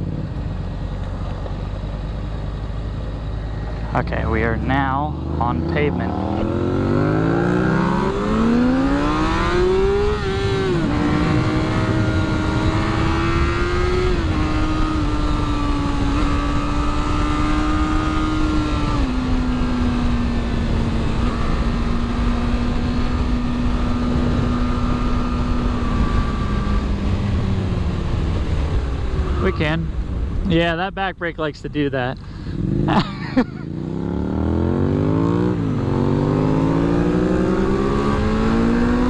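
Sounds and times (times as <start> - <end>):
wind noise: 5.1 - 31.2
motorcycle engine pulling away: 6.1 - 29.4.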